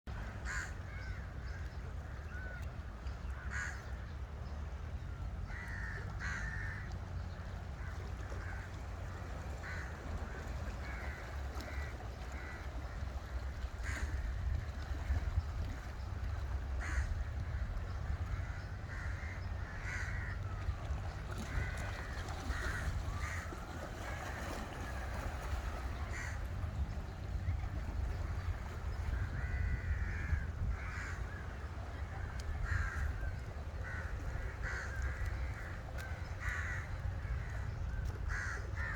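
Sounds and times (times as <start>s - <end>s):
birds cawing: 0.3s - 1.6s, 3.4s - 3.8s, 5.5s - 6.9s, 7.8s - 13.2s, 16.8s - 17.2s, 18.2s - 20.5s, 21.3s - 26.5s, 29.0s - 37.7s, 38.3s - 38.9s.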